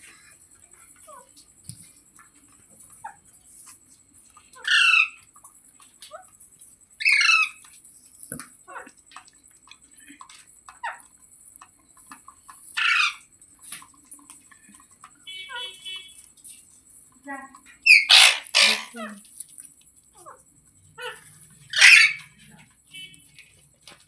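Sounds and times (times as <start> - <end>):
parrot harsh calls: 4.6 - 5.2, 7.0 - 7.6, 12.8 - 13.3, 17.8 - 19.0, 21.7 - 22.4
parrot soft chirps and clicks: 17.9 - 19.6.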